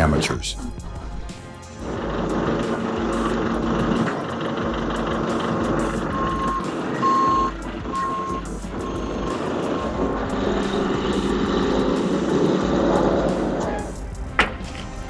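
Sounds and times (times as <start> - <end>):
truck engine running: 0.7 - 15.0
reversing alarm beeping: 4.8 - 12.2.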